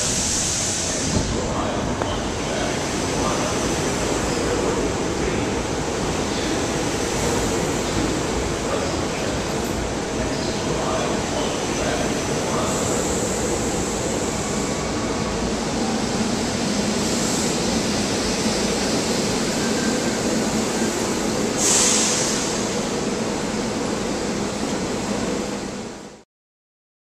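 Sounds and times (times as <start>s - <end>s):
air hiss: 0.0s - 1.6s, 21.4s - 22.8s.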